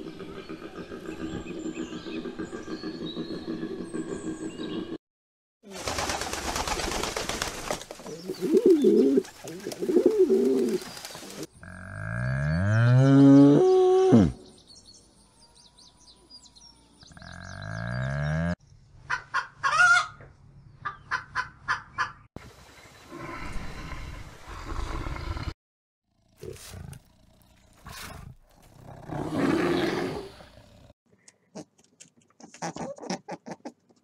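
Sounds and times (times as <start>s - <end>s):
pigeons flapping wings: 5.7s - 11.5s
pigeons cooing: 8.1s - 11.5s.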